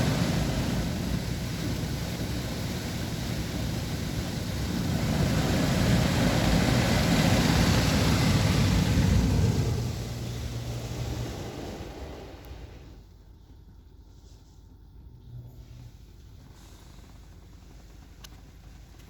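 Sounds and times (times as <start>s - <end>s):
car wash machine rushing: 0.0s - 13.2s.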